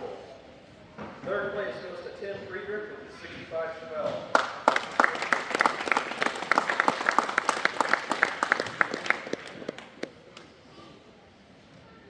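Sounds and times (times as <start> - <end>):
crowd applauding: 4.4 - 10.2.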